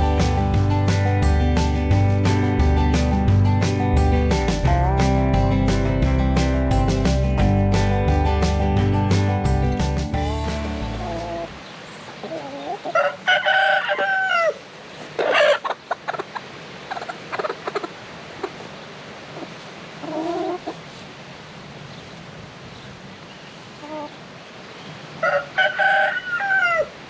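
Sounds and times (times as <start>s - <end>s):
chickens clucking and squawking: 10.8s - 18.7s, 19.3s - 20.9s, 25.2s - 27.0s
rooster crowing: 12.8s - 14.6s, 25.2s - 27.0s.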